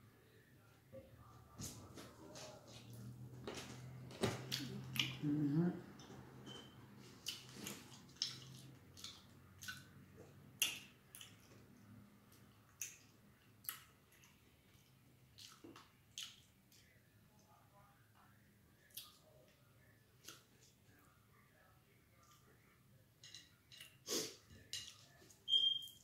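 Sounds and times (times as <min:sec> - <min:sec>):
person humming: 0:04.7 - 0:05.8
person chewing sandwich: 0:07.1 - 0:11.6.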